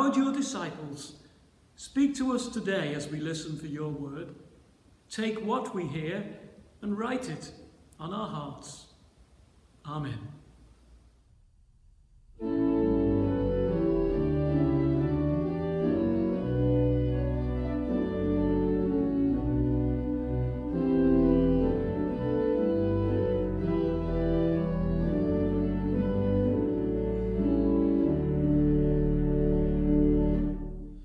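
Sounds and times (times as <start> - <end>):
hymn-like organ music: 12.3 - 31.0.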